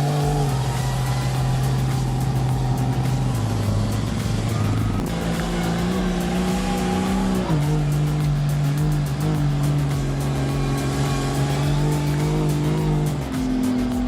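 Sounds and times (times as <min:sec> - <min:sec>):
background music: 0:00.0 - 0:14.0
truck engine running under load: 0:00.0 - 0:14.0.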